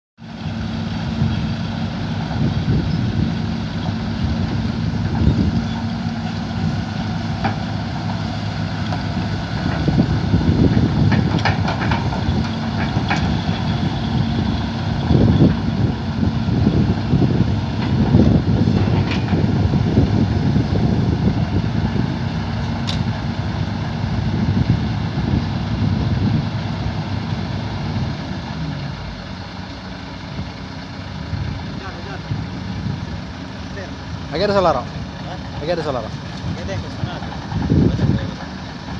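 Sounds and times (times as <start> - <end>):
excavator diesel engine running: 0.2 - 38.9
sharp knocks and clanks: 11.0 - 13.6.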